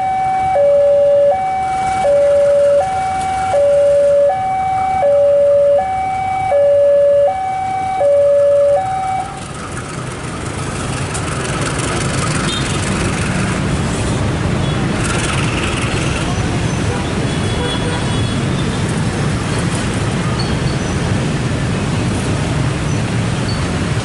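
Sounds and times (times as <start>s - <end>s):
two-tone electronic warning signal: 0.0s - 9.4s.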